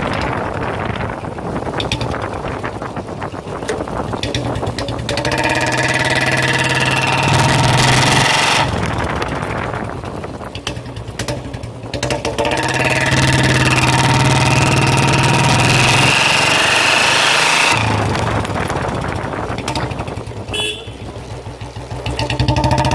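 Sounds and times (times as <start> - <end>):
single-cylinder motorcycle engine revving: 0.0 - 22.9.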